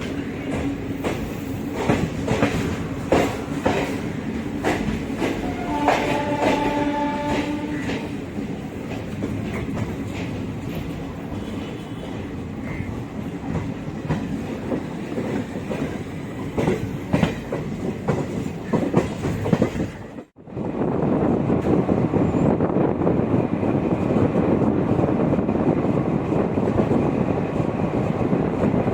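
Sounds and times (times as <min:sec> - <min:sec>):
train wheels clicking on rails: 0:00.0 - 0:20.4
train horn: 0:05.2 - 0:08.2.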